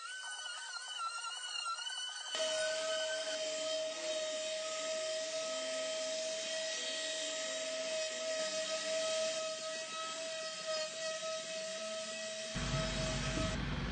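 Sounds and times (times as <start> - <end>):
electric sander whining: 12.6 - 13.9.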